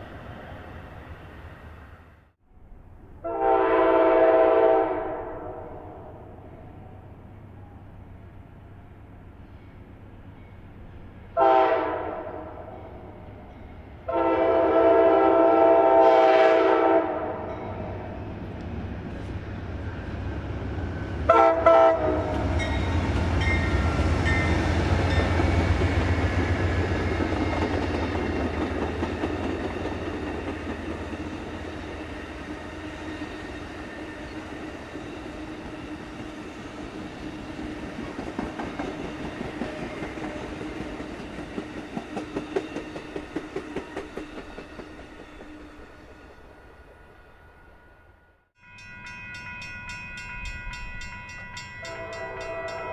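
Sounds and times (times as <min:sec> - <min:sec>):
locomotive horn blast: 0:03.2 - 0:06.2, 0:11.4 - 0:12.8, 0:14.1 - 0:17.6, 0:21.3 - 0:22.6, 0:51.8 - 0:52.9.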